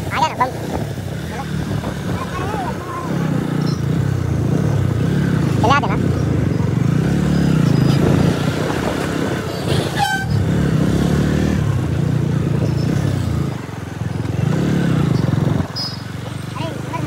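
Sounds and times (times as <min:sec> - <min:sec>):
motorcycle engine running: 0:00.0 - 0:17.0
horn toot: 0:09.6 - 0:10.5.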